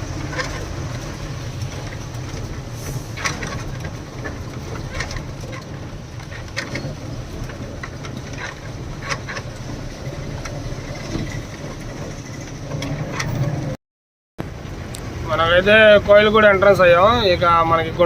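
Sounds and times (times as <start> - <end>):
knocks and rattles: 0.0 - 13.8
truck engine running: 0.0 - 13.8.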